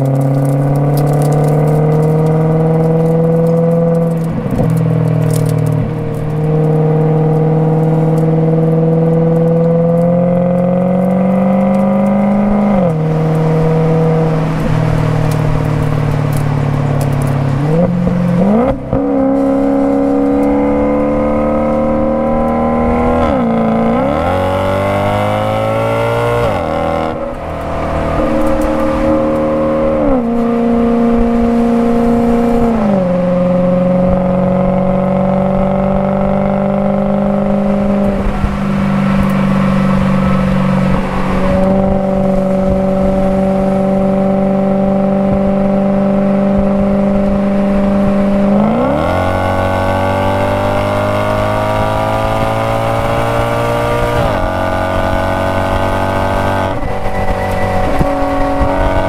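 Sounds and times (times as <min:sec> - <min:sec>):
car engine accelerating through gears: 0:00.0 - 0:59.0.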